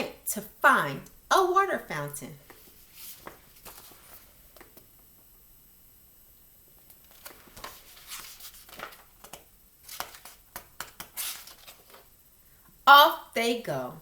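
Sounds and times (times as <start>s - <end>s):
book pages turning: 2.5s - 4.9s, 6.9s - 12.1s.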